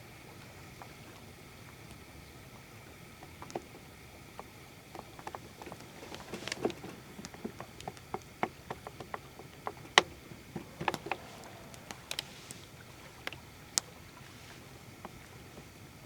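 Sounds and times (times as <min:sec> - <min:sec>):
faint steady background noise: 0:00.0 - 0:16.0
light clicks and taps: 0:03.2 - 0:14.0.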